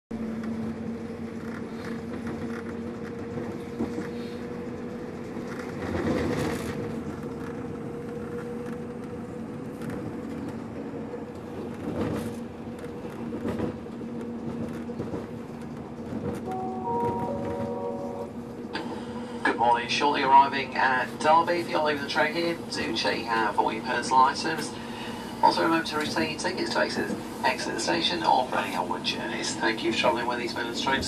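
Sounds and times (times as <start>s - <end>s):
train rumbling on board: 0.1s - 31.0s
two-note hum: 16.5s - 18.4s.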